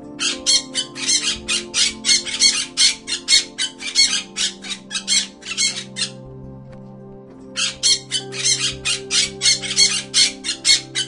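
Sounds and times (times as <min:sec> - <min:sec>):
background music: 0:00.0 - 0:11.0
bird squawking harshly: 0:00.2 - 0:06.2.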